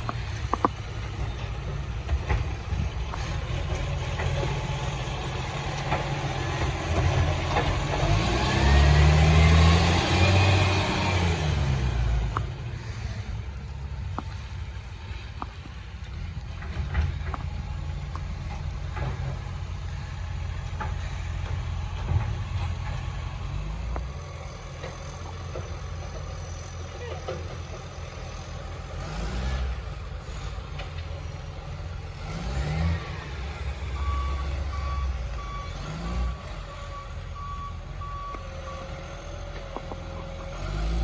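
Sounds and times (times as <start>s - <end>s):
garbage truck diesel engine: 0.0s - 41.0s.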